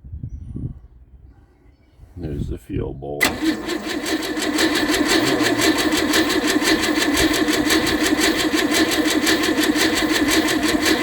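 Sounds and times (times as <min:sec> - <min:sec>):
starter motor cranking engine: 0:03.2 - 0:11.0.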